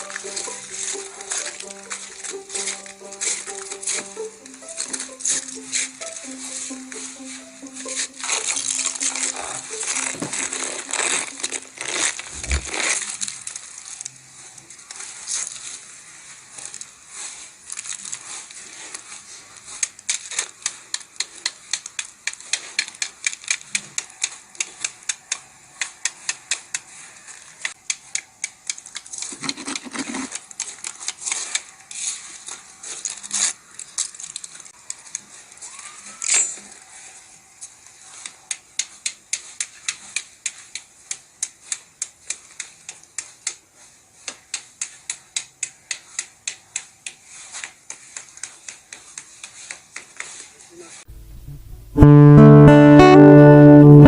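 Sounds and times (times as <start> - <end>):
freezing rain ticking on ice: 0.0 - 29.4, 30.3 - 36.5.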